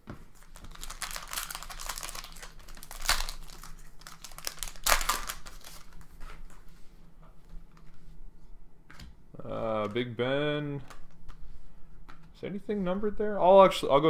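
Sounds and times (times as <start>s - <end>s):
cards rustling: 0.1s - 8.1s, 8.9s - 12.4s
plastic wrappers crinkling and tearing: 0.3s - 6.7s.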